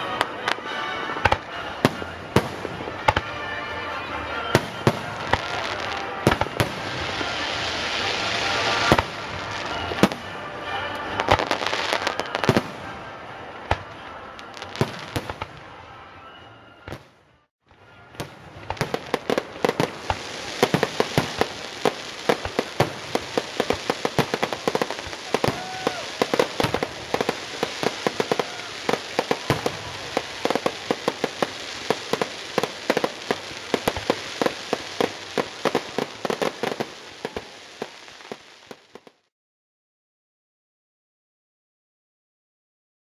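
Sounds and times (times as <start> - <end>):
fireworks bangs and booms: 0.0 - 16.2, 16.8 - 39.2
fireworks crackling: 0.0 - 39.3
rapid fireworks pops: 4.6 - 15.8, 17.8 - 39.3.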